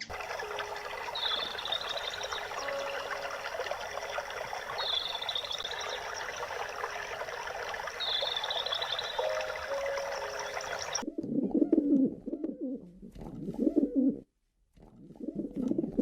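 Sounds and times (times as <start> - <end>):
water trickling: 0.0 - 11.0.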